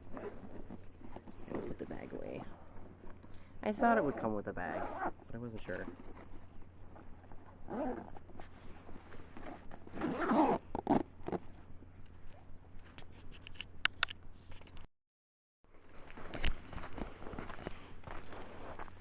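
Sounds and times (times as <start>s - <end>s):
bag rustling and zipping: 0.0s - 2.5s, 3.8s - 6.3s, 7.6s - 11.4s
sharp clicks: 13.3s - 14.2s.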